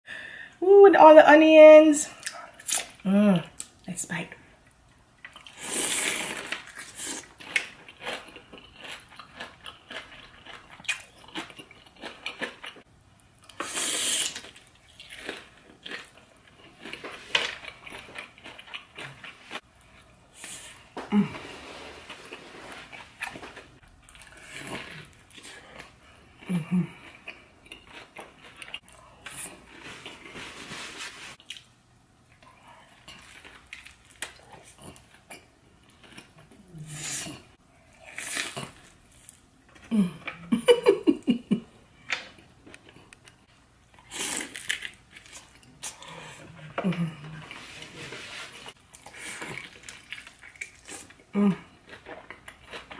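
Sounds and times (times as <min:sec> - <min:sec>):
crunchy chewing and biting: 0:05.3 - 0:12.8, 0:13.5 - 0:19.6, 0:44.0 - 0:46.1.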